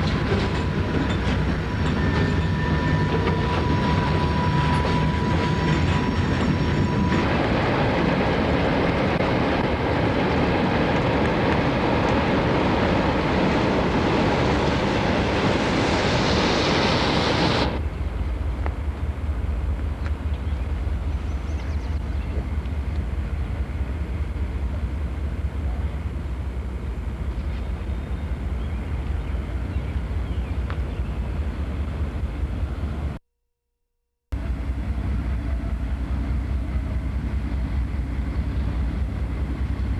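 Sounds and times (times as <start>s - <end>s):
freight train rail and wheel noise: 0.0s - 33.2s, 34.4s - 39.9s.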